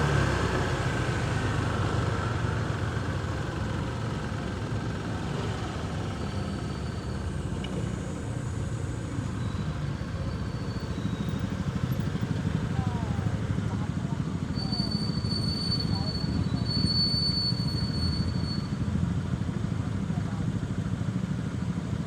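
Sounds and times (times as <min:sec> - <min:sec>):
motorcycle engine running: 0:00.0 - 0:22.0
street traffic: 0:00.0 - 0:22.0.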